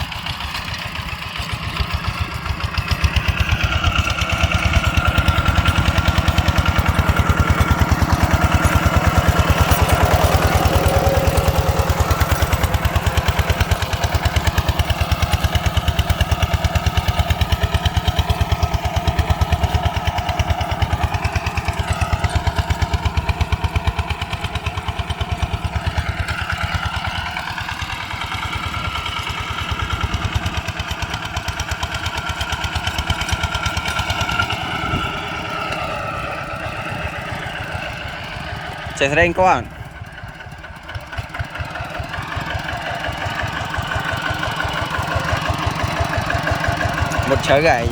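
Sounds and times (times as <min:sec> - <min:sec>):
tractor diesel engine chugging: 0:00.0 - 0:47.9.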